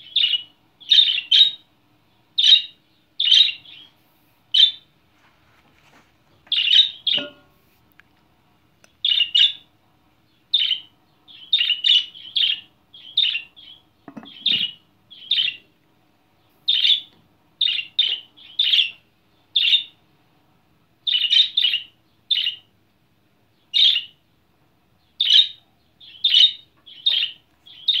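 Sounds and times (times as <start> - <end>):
budgerigar shrill chirps: 0.0 - 1.7, 2.4 - 3.9, 6.5 - 7.4, 9.0 - 9.6, 10.5 - 15.7, 16.7 - 19.0, 19.6 - 20.0, 21.1 - 22.7, 23.7 - 24.2, 25.2 - 28.0.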